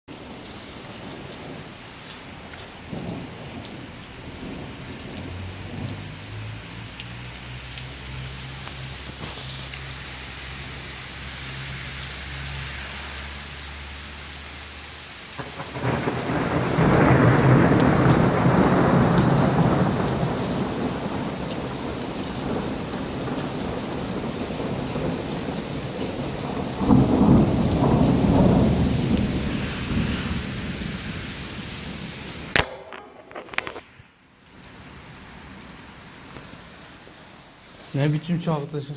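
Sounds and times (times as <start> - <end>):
steady rain falling: 0.0 - 38.9
rumbling thunderclap: 0.2 - 7.0, 15.4 - 32.9.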